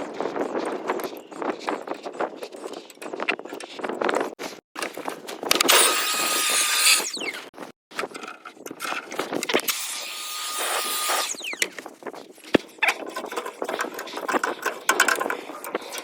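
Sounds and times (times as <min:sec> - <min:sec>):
knocking and rattling: 0:12.6 - 0:16.0.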